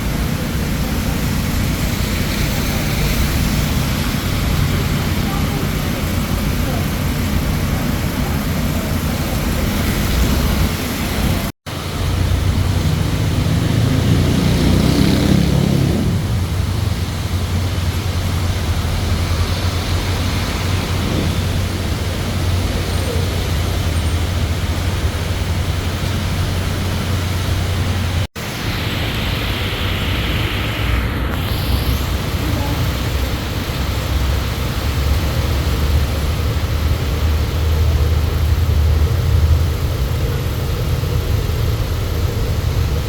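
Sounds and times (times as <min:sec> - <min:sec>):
low engine hum: 0:00.0 - 0:43.0
traffic and road noise: 0:00.0 - 0:43.0.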